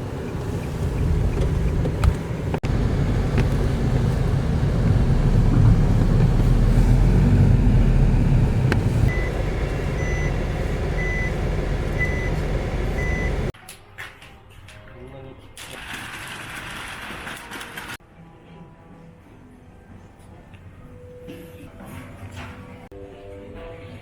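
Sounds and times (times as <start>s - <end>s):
vehicle engine rumbling: 0.0s - 13.6s
reverse warning beeps: 9.1s - 13.5s.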